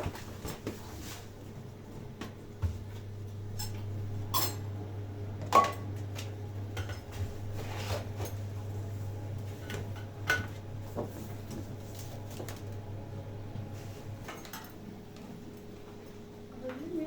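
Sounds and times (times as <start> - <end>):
steady low hum: 0.0 - 17.0
dishes and utensils clinking: 3.5 - 4.7, 14.2 - 14.8.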